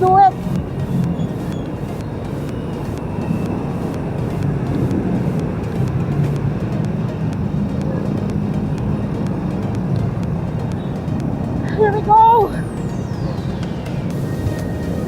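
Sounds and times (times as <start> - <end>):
faint regular ticking: 0.0 - 15.0
heavy road traffic: 0.0 - 15.0.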